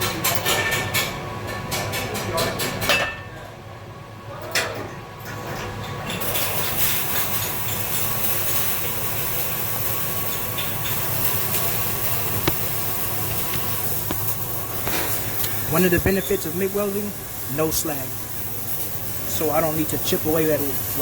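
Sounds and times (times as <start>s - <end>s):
welding arc hissing: 6.2s - 21.0s.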